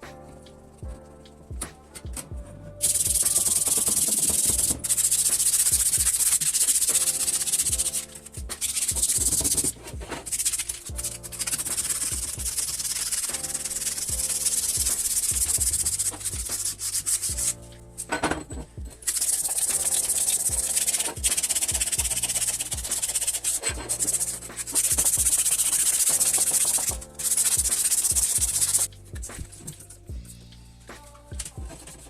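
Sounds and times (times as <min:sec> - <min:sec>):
background music: 0:00.0 - 0:32.0
hand sanding strokes: 0:02.9 - 0:17.6, 0:19.0 - 0:29.8.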